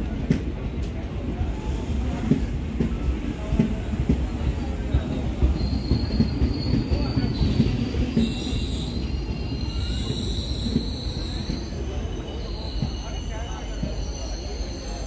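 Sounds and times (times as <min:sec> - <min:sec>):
train wheels rumbling on rail: 0:00.0 - 0:15.0
high-pitched wheel squeals: 0:05.6 - 0:15.0.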